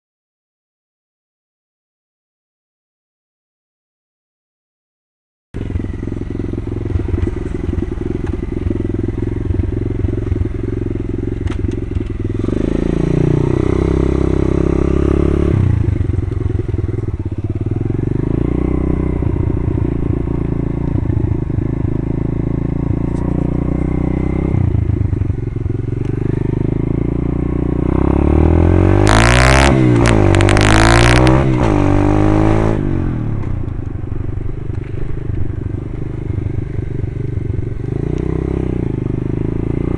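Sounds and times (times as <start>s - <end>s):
pit bike engine revving: 5.6s - 33.4s.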